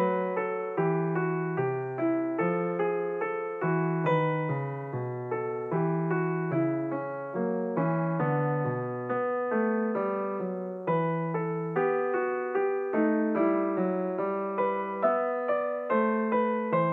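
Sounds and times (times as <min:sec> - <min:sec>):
piano music: 0:00.0 - 0:16.9.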